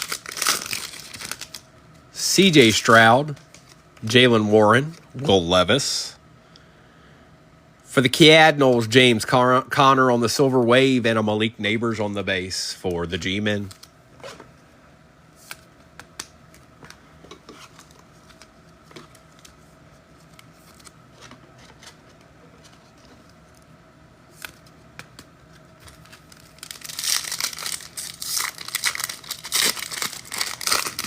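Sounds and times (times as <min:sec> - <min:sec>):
foil wrapper crinkling and tearing: 0:00.0 - 0:01.6, 0:25.8 - 0:31.0.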